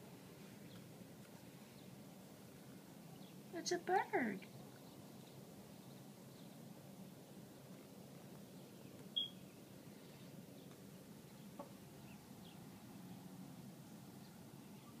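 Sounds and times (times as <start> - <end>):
faint outdoor background noise: 0.0 - 15.0
high bird chirps: 9.2 - 9.5.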